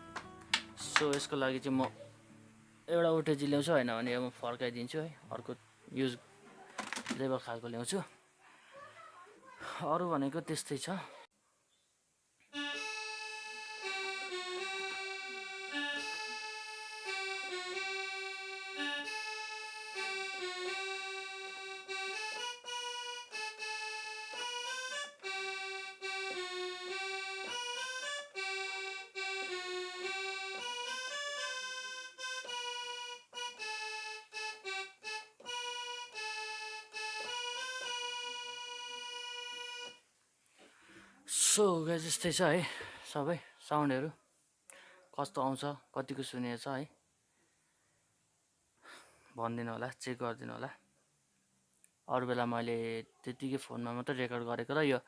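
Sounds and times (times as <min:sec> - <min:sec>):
electronic keyboard melody: 0:00.0 - 0:04.3, 0:12.5 - 0:40.1.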